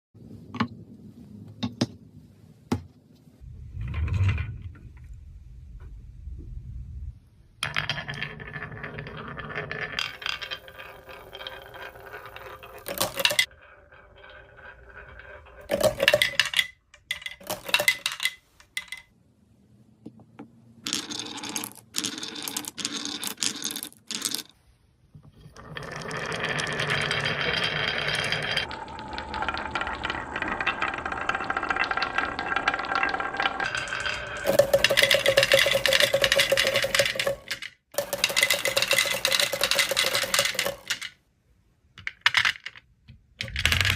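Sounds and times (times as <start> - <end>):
marbles rolling down wooden track: 7.6 - 19.1, 20.8 - 24.6, 25.4 - 41.2, 42.0 - 43.9.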